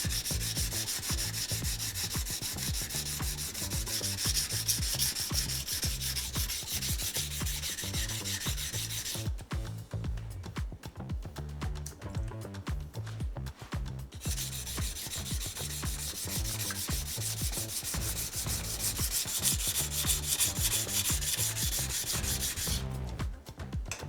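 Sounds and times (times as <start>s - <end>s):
knife grinding on whetstone: 0.0s - 9.3s, 14.2s - 22.9s
quiet background music: 0.0s - 24.0s.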